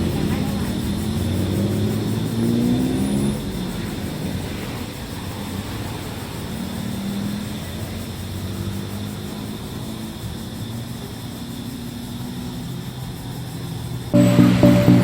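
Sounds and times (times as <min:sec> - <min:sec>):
loud music with plucked notes: 0:14.2 - 0:15.0
low engine drone: 0:14.2 - 0:15.0.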